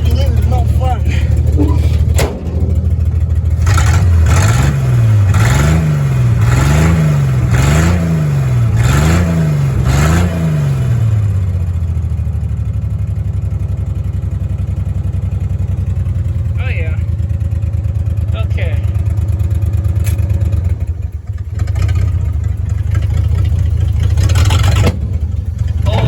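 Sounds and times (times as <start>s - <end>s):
truck engine revving and idling: 0.0s - 26.0s.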